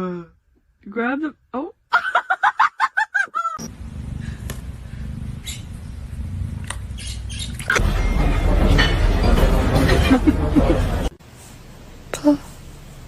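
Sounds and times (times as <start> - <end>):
steady low hum: 3.6 - 13.0
high chirping animal calls: 5.4 - 5.8, 6.9 - 7.8.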